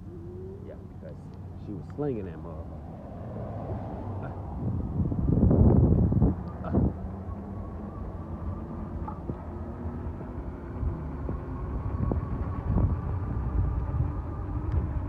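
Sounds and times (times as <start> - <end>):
wind and road noise: 0.0 - 15.0
electric bike motor whine: 4.4 - 15.0.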